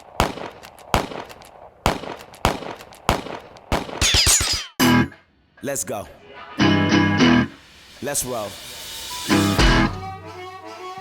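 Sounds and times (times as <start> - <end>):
falling sweep: 6.2 - 10.3
loud sharp percussive hits: 9.3 - 10.1.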